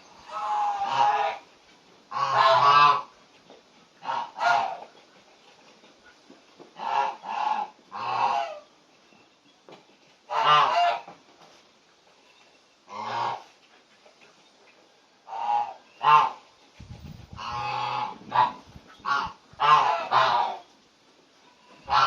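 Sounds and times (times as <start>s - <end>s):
goose-like honking calls: 0.2s - 1.4s, 2.1s - 3.1s, 4.0s - 4.9s, 6.8s - 8.6s, 10.3s - 11.2s, 12.9s - 13.5s, 15.3s - 16.4s, 17.4s - 20.7s, 21.6s - 22.0s.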